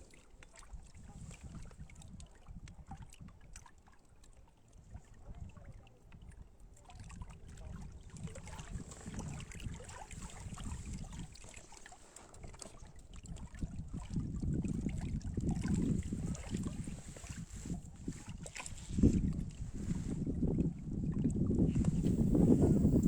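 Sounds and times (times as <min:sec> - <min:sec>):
wind buffeting microphone: 0:07.0 - 0:11.4, 0:13.2 - 0:23.0.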